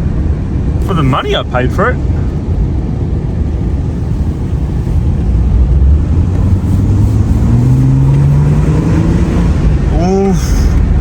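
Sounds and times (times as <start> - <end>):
car engine accelerating: 3.4 - 11.0.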